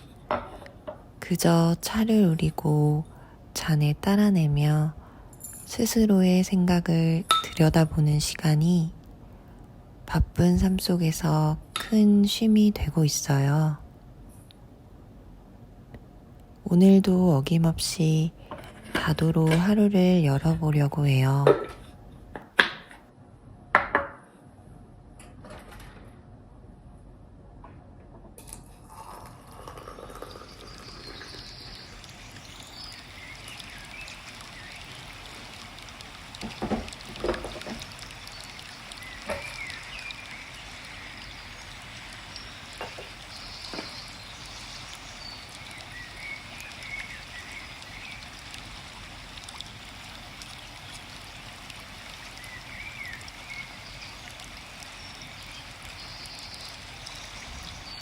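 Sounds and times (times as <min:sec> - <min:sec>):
stream running: 0:28.9 - 0:58.0
birds chirping: 0:30.0 - 0:49.0, 0:50.3 - 0:58.0.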